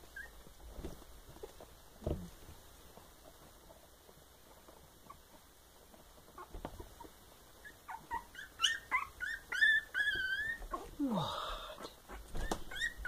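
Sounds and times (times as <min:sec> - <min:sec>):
puppy whimpering: 0:00.0 - 0:00.5, 0:06.3 - 0:11.1, 0:11.8 - 0:13.0.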